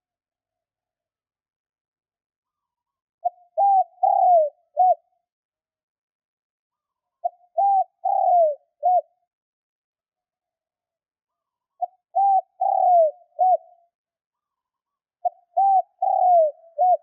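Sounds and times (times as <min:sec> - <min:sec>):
dove cooing: 0:03.2 - 0:05.1, 0:07.2 - 0:09.2, 0:11.8 - 0:13.8, 0:15.2 - 0:17.0.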